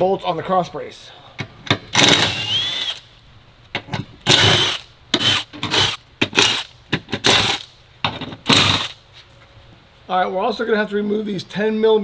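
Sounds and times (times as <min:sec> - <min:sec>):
power tool spinning out bolts: 0:01.9 - 0:03.0, 0:04.3 - 0:07.7, 0:08.4 - 0:09.0.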